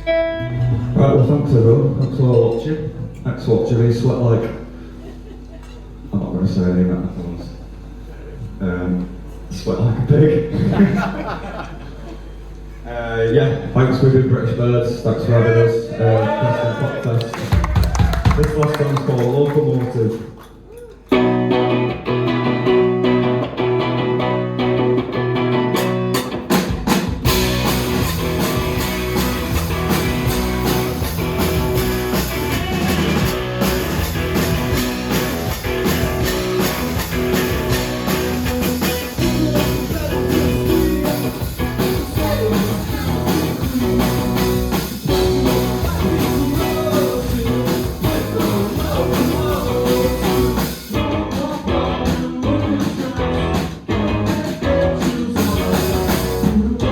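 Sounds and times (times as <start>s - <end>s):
live rock band playing: 0.0s - 2.0s, 21.1s - 56.9s.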